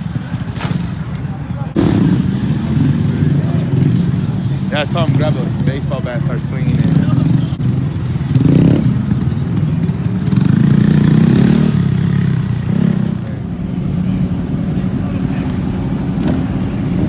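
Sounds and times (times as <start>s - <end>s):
motorcycle engines running: 0.0s - 17.0s.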